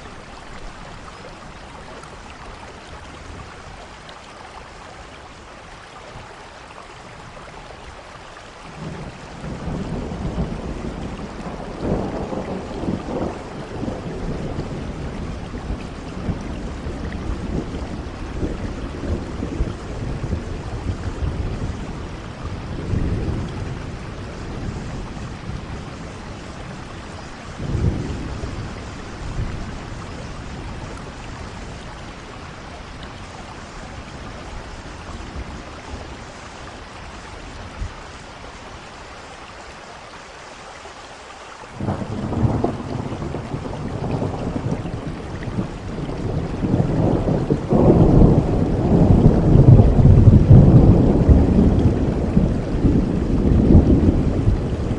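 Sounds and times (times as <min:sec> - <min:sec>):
steady rain: 0:00.0 - 0:54.9
thunder rumbling: 0:08.8 - 0:38.2, 0:41.8 - 0:54.9
thunder crack: 0:41.8 - 0:45.0, 0:46.0 - 0:54.9.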